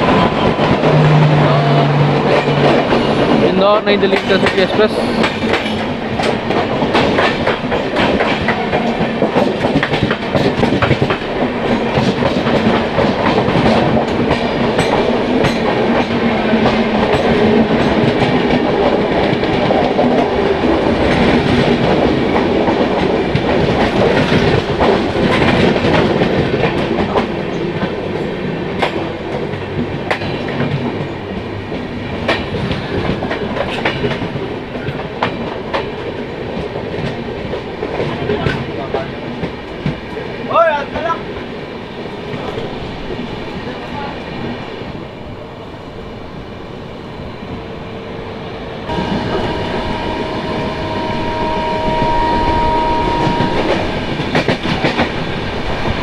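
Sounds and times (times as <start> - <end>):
trains rumbling past: 0.0 - 56.0
wheels clickety-clack over joints: 2.0 - 41.5, 53.5 - 56.0.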